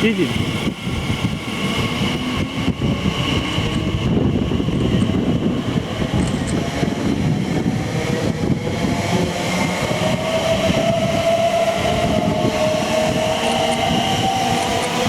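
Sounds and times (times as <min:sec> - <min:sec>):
train wheels rumbling on rail: 0:00.0 - 0:15.0
train motor whine: 0:01.0 - 0:15.0.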